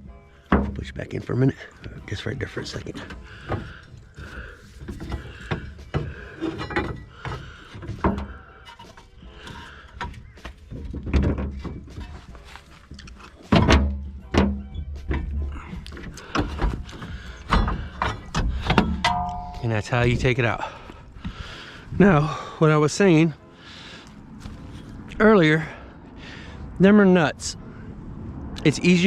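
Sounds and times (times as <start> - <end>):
metal clunks and knocks: 0.4 - 21.4
heavy thunk: 17.5 - 19.6.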